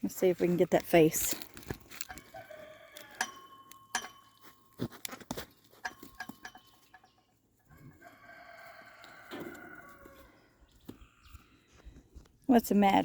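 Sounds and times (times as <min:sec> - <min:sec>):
rooster crowing: 0:02.1 - 0:03.4, 0:07.8 - 0:10.4.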